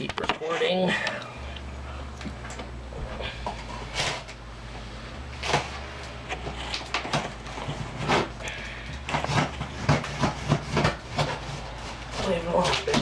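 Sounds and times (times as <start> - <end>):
low hum: 0.9 - 13.0
cardboard package scraping and tearing: 9.1 - 13.0.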